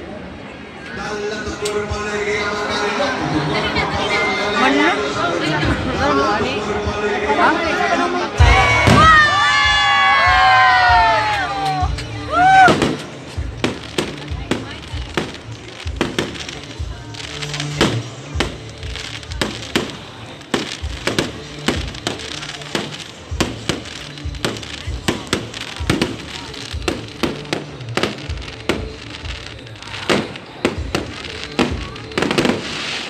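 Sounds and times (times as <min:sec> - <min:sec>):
music playing: 0:01.1 - 0:33.0
fireworks bangs and crackles: 0:08.4 - 0:33.0.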